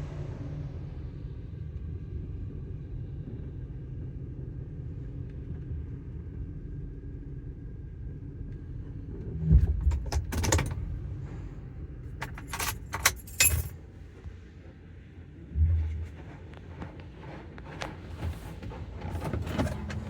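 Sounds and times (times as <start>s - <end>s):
car wash low rumble: 0.0s - 20.0s
sharp jingling clicks: 12.2s - 13.7s.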